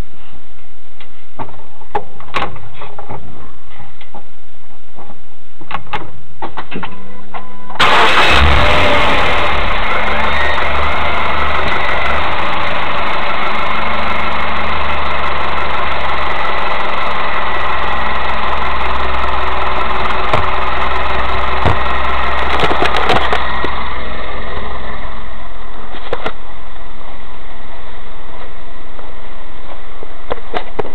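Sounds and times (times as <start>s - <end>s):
car engine idling: 7.8s - 26.8s.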